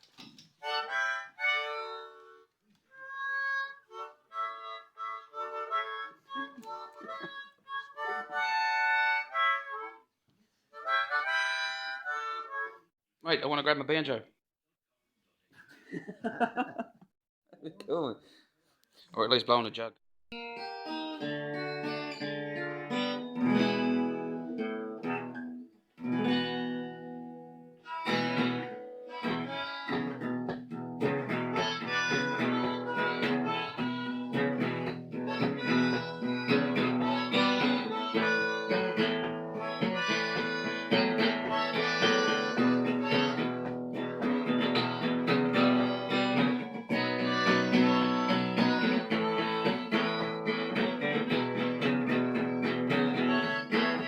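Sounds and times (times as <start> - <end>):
harmonica: 0.6 - 10.1, 10.7 - 12.9, 20.4 - 25.5, 27.8 - 54.0
plucked string instrument: 20.4 - 54.0.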